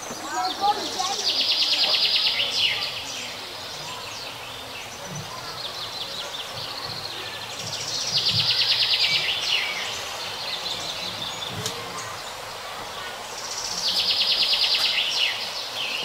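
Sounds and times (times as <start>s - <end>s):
songbird trilling: 0.3s - 12.4s.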